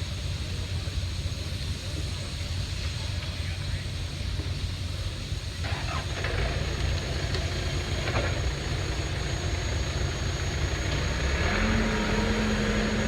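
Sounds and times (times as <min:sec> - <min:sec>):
engine rumbling: 0:05.7 - 0:13.0.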